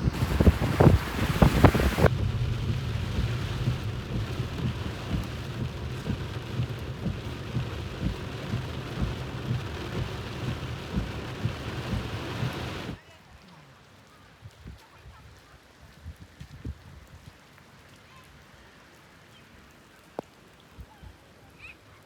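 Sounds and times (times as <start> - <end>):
rain hissing: 0.0 - 13.0
wind gusting on microphone: 0.0 - 13.0.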